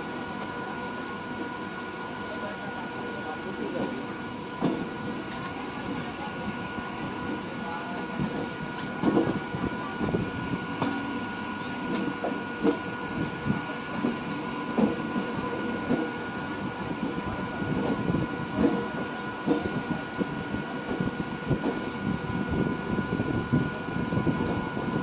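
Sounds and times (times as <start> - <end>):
train rumble: 0.0 - 25.0
train wheels knocking on rails: 4.6 - 5.5, 7.2 - 11.2, 11.8 - 20.0, 20.8 - 22.0.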